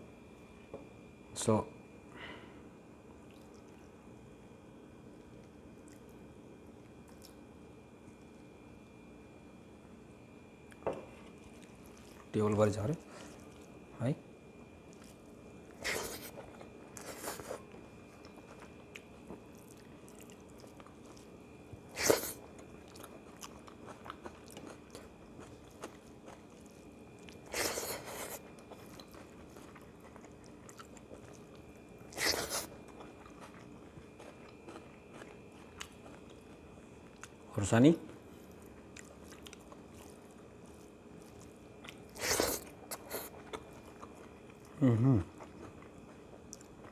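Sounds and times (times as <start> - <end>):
faint steady hum: 0.0 - 46.9
chewing and mouth smacks: 3.2 - 4.2, 5.1 - 9.0, 10.6 - 12.4, 13.2 - 13.8, 14.8 - 37.5, 38.1 - 46.9.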